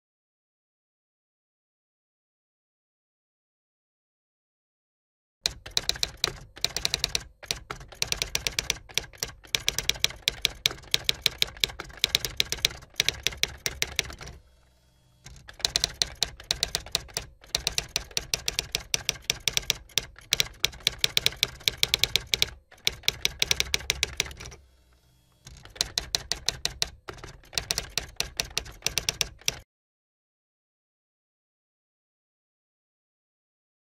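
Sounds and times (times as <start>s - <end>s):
rapid keyboard key clicks: 5.5s - 14.4s, 15.3s - 24.6s, 25.5s - 29.6s.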